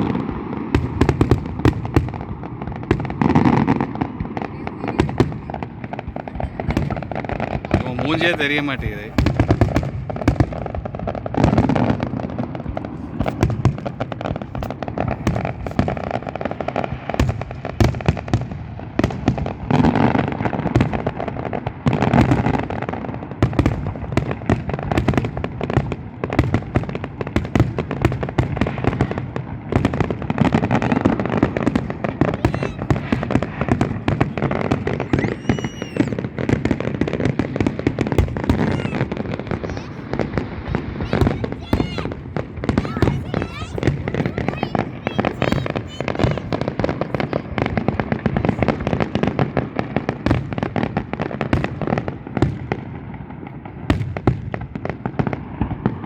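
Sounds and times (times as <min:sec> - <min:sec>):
fireworks bangs and crackling: 0:00.0 - 0:56.0
firework whistle: 0:32.2 - 0:47.3.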